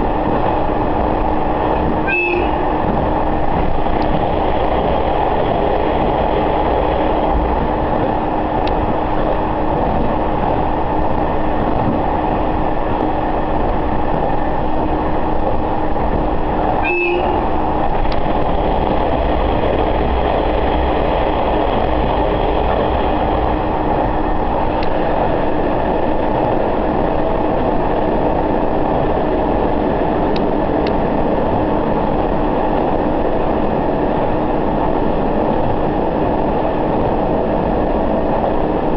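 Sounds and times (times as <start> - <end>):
train engine and wheels on rails: 0.0 - 38.9.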